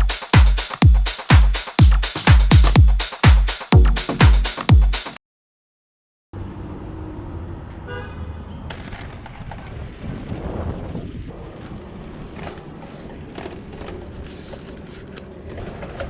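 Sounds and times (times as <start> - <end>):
street traffic rumble: 6.4 - 14.2.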